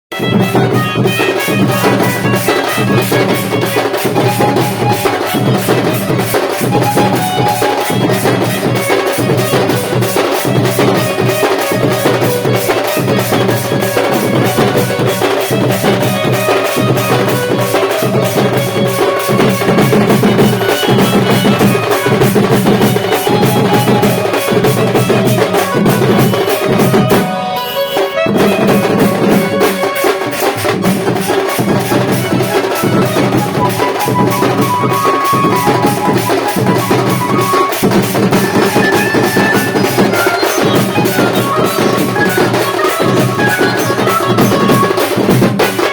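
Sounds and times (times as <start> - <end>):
fast dense drumming: 0.1 - 45.9
melody line: 13.0 - 30.3.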